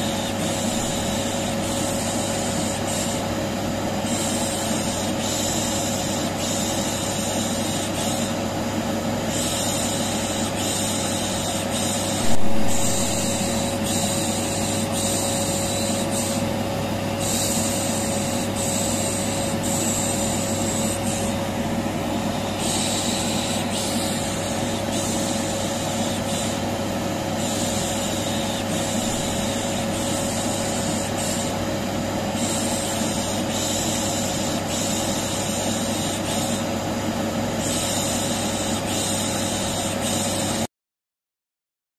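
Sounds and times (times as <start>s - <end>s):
vacuum cleaner running: 0.0s - 32.8s.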